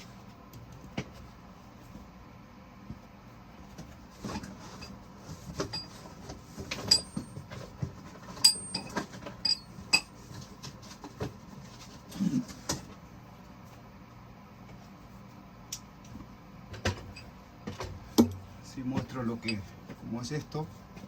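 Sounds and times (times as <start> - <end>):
metal tools clinking: 8.4 - 10.1.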